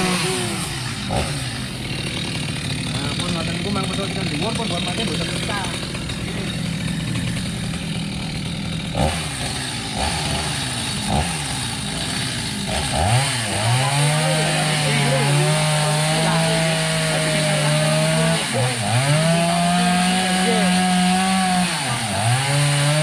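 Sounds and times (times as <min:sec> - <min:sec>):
chainsaw cutting wood: 0:00.0 - 0:23.0
chainsaw idling and revving: 0:00.0 - 0:23.0.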